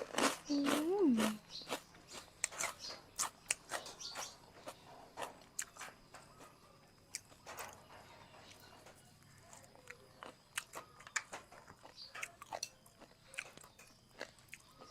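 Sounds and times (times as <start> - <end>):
person chewing wetly: 0.0 - 5.8, 9.5 - 14.9.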